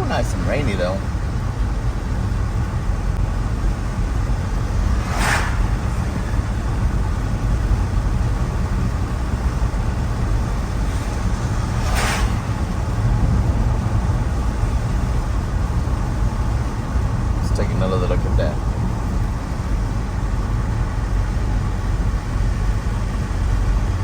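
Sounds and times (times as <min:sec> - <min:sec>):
car driving on wet road: 0:00.0 - 0:24.0
hissing swooshes: 0:03.6 - 0:08.1, 0:10.2 - 0:13.5.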